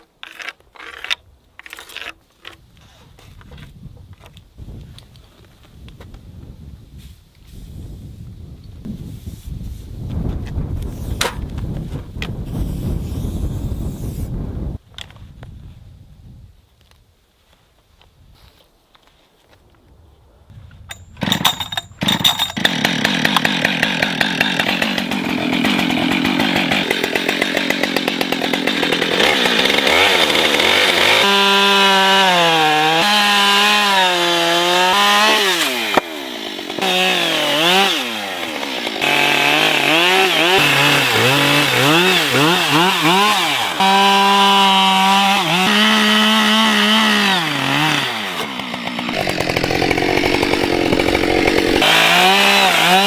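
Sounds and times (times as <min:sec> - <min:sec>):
chainsaw cutting wood: 0:21.2 - 0:53.0.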